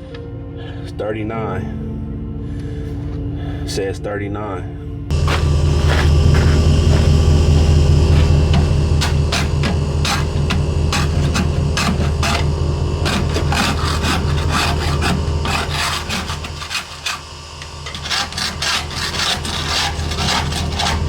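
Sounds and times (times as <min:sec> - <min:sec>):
pump rasping chatter: 0:05.1 - 0:21.0
tire inflator motor hum: 0:05.1 - 0:21.0.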